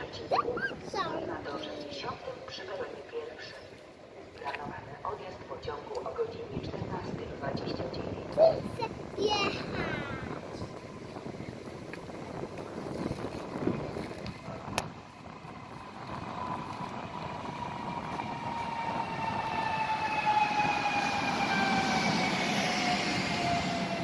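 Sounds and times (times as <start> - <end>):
train arriving at station: 0.0 - 24.0.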